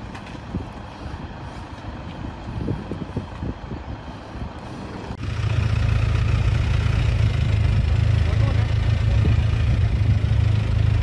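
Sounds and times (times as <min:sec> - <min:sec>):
steady low engine hum: 0:00.0 - 0:11.0
engine rumbling with knocks: 0:05.1 - 0:11.0.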